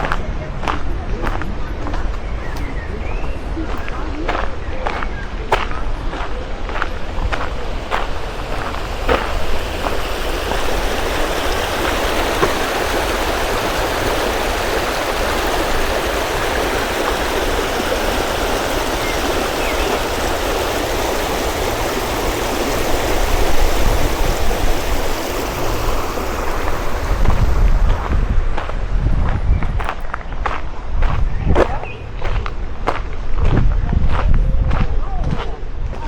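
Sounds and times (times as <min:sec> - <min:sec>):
water rushing: 0:04.5 - 0:29.0.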